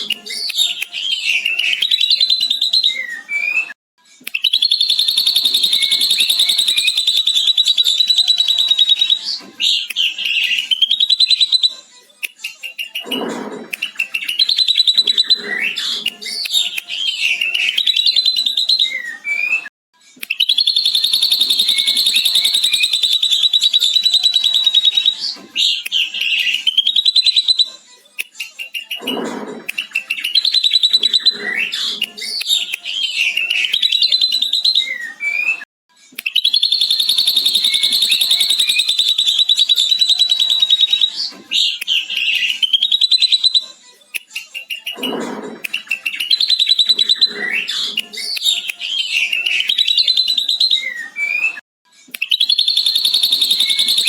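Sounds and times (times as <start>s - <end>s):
bird whistling phrases: 0.2s - 3.7s, 4.4s - 11.8s, 13.8s - 27.7s, 29.8s - 35.6s, 36.2s - 43.7s, 44.6s - 51.6s, 52.2s - 54.0s
bird chattering: 36.4s - 40.7s, 52.5s - 54.0s.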